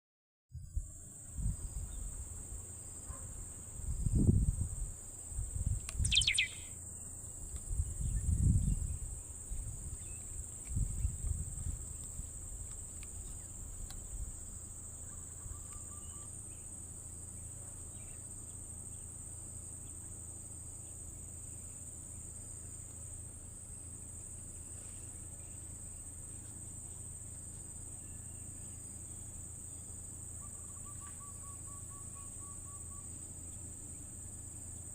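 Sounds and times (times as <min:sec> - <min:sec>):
insects droning: 0:00.6 - 0:34.9
falling bird call: 0:06.1 - 0:06.7.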